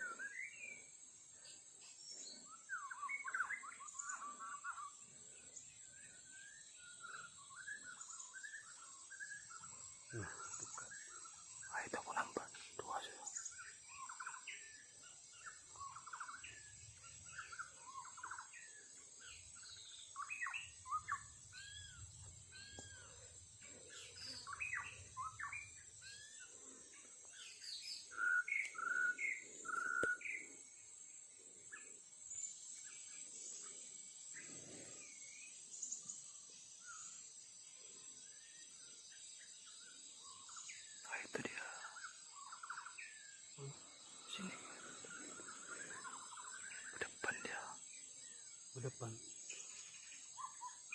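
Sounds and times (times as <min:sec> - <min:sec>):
bird singing whistled notes: 0:06.0 - 0:23.2, 0:23.9 - 0:26.5, 0:27.3 - 0:30.6, 0:38.4 - 0:50.9.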